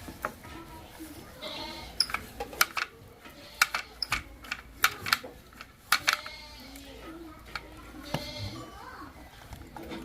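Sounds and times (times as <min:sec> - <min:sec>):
animal bleating: 0:01.4 - 0:02.0, 0:06.2 - 0:06.9, 0:08.0 - 0:08.8
sharp clicks and knocks: 0:02.0 - 0:06.3.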